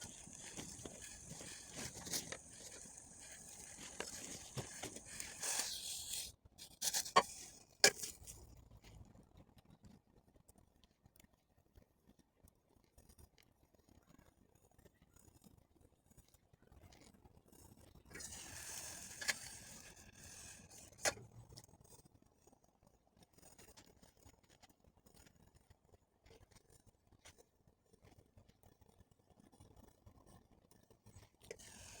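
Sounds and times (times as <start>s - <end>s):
brief rustle: 0.0s - 8.3s.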